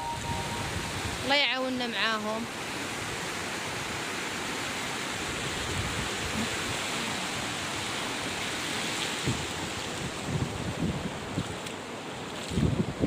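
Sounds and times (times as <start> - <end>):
wind buffeting microphone: 0.0 - 2.1, 5.2 - 8.4, 9.1 - 13.0
sea surf washing on shore: 0.0 - 13.0.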